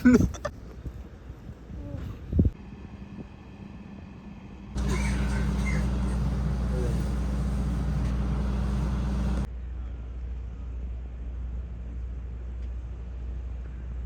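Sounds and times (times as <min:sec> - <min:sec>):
vehicle interior road noise: 0:04.8 - 0:09.5.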